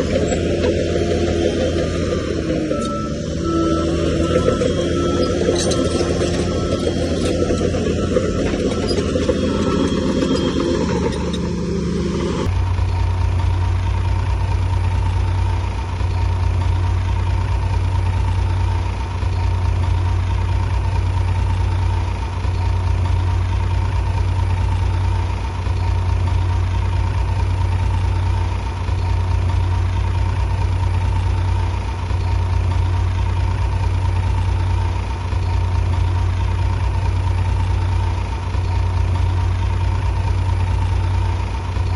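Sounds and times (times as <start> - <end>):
busy machine sound: 0.0 - 12.5
bulldozer diesel engine droning: 0.0 - 41.9.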